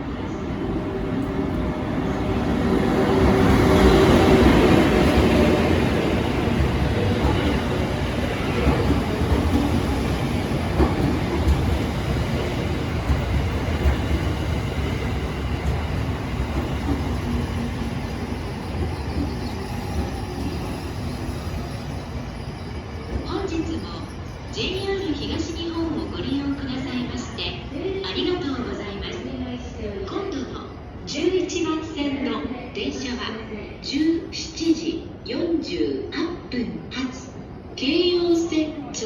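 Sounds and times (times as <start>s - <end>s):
locomotive hum: 0.0s - 29.3s
electric locomotive passing: 0.0s - 35.3s.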